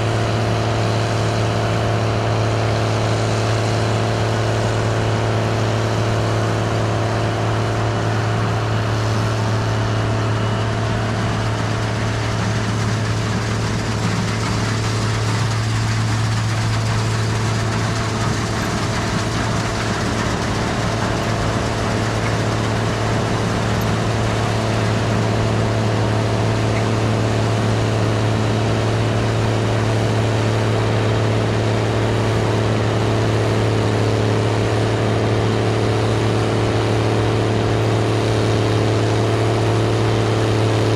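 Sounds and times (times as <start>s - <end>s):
combine harvester engine drone: 0.0s - 40.9s.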